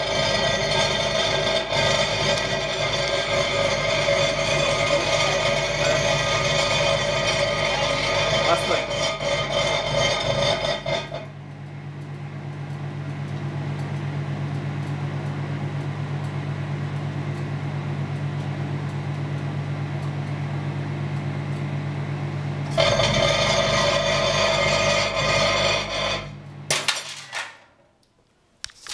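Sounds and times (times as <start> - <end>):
microwave oven humming: 0.0 - 28.9
loud plasma buzz: 22.7 - 26.4.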